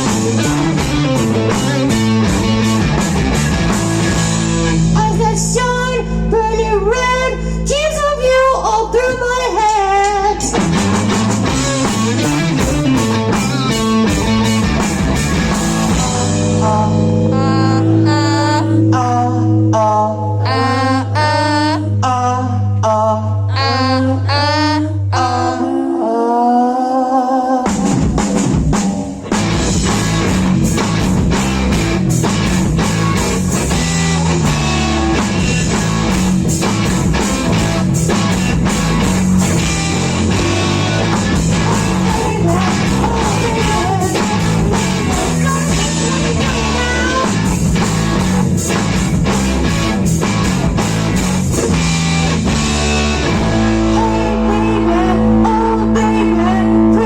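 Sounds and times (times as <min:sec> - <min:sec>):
drum kit: 0:00.0 - 0:05.6, 0:09.1 - 0:18.2, 0:27.6 - 0:55.3
distorted electric guitar: 0:00.0 - 0:08.2, 0:08.8 - 0:25.6, 0:27.6 - 0:57.0
bass guitar: 0:00.0 - 0:25.9, 0:27.6 - 0:57.0.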